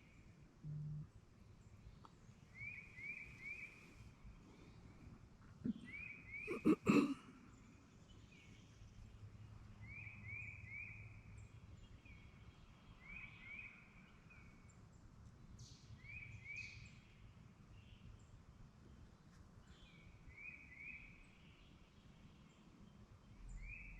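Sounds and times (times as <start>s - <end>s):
songbird calling: 2.5s - 4.0s, 5.7s - 7.2s.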